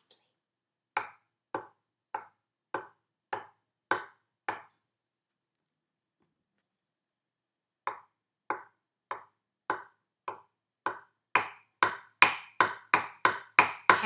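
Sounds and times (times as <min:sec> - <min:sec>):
wooden spoons tapping on board: 0:01.0 - 0:04.7, 0:07.9 - 0:14.0.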